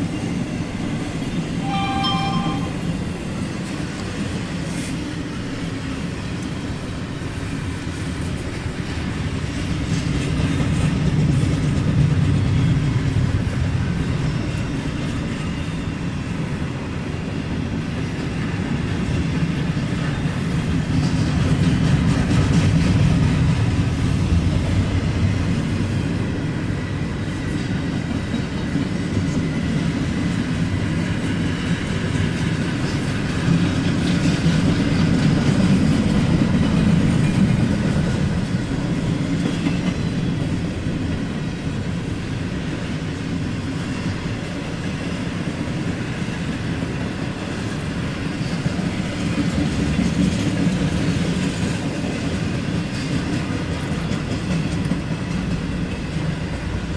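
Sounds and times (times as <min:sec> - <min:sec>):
freight train rumbling past: 0:00.0 - 0:56.9
wheels clattering on rails: 0:00.0 - 0:56.9
faint high ring: 0:01.6 - 0:03.4.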